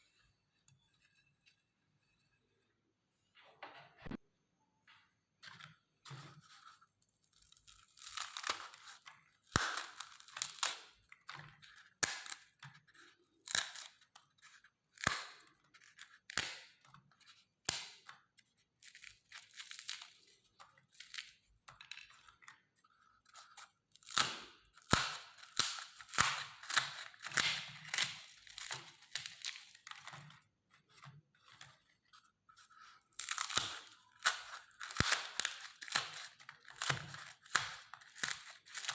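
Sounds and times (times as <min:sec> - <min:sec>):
meat grinder crunching cones: 0:07.4 - 0:17.1, 0:23.4 - 0:31.2, 0:32.7 - 0:38.9
sharp snaps of breaking pieces: 0:09.5 - 0:10.9.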